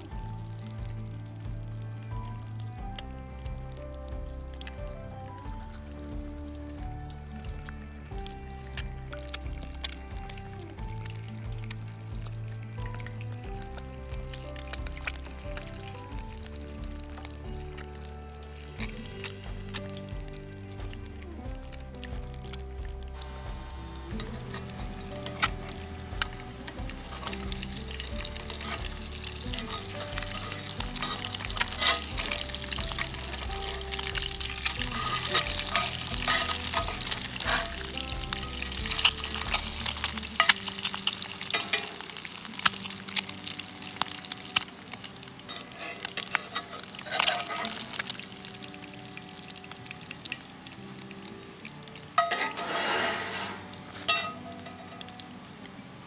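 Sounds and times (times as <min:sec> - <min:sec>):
campfire crackling: 0:23.0 - 0:56.0
food sizzling in skillet: 0:23.1 - 0:56.0
utensil scraping pan: 0:23.2 - 0:44.3, 0:45.1 - 0:48.2, 0:52.2 - 0:55.1.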